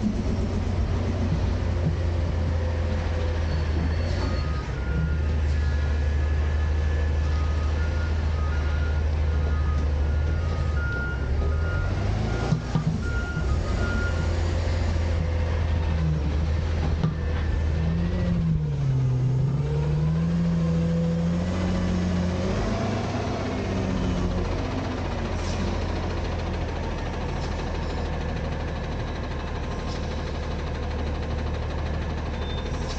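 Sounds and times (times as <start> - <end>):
garbage truck diesel engine: 0.0 - 32.9
reversing alarm beeping: 3.4 - 14.5.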